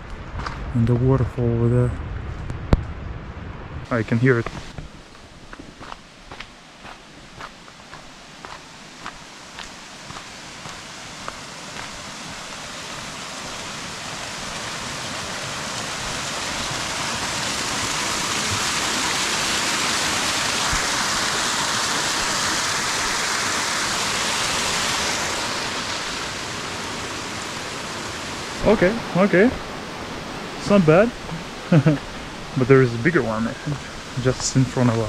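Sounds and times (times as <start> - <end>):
faint footsteps: 4.4 - 13.1
waterfall rushing: 7.3 - 35.0.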